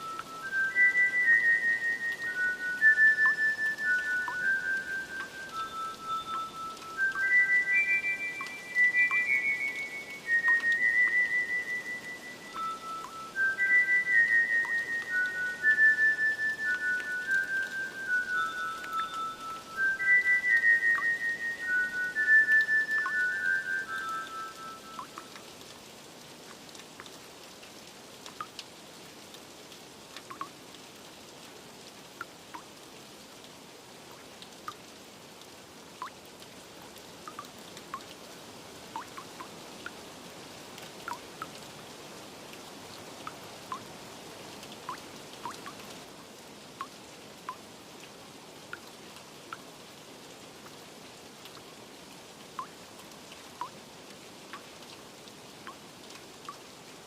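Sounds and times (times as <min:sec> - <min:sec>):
water drops plinking: 0:00.0 - 0:25.5, 0:30.2 - 0:30.6, 0:37.3 - 0:38.1, 0:39.0 - 0:39.5, 0:52.6 - 0:52.8
steady rain: 0:00.0 - 0:57.0.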